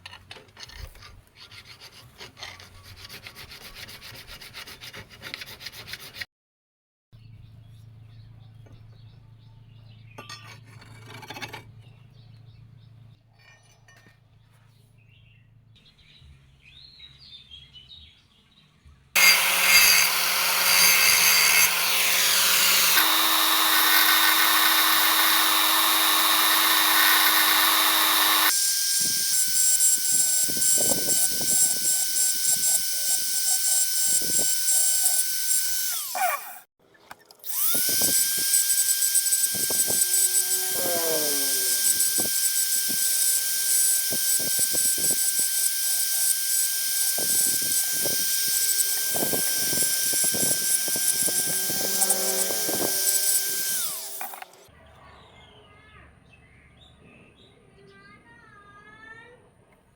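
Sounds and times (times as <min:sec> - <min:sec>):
power tool whining on steel: 0:19.2 - 0:36.7, 0:37.4 - 0:54.7.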